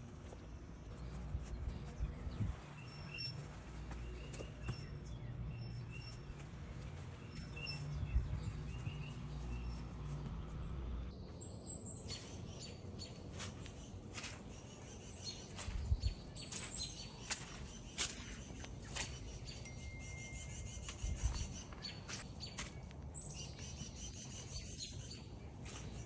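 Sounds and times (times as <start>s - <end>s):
steady low rumble: 0.0s - 11.4s, 12.2s - 20.0s
small birds chirping: 0.0s - 26.0s.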